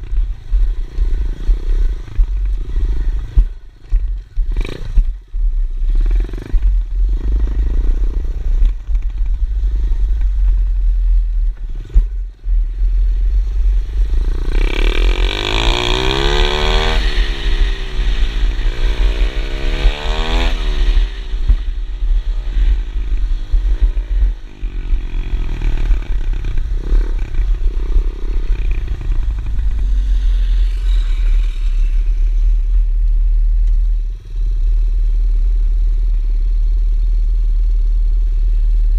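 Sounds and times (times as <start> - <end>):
small pit bike engine revving: 13.9 - 21.8, 22.6 - 32.7.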